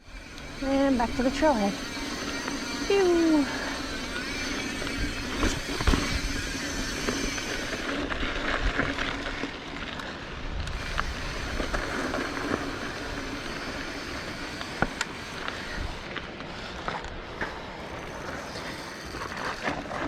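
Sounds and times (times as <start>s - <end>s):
bike clicks and rattles: 0.0s - 20.0s
tyre and wind rush: 0.0s - 20.0s.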